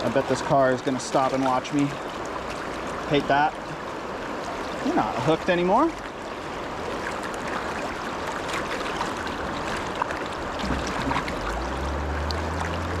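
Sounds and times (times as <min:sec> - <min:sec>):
river current rushing: 0:00.0 - 0:13.0
low hum: 0:10.6 - 0:13.0.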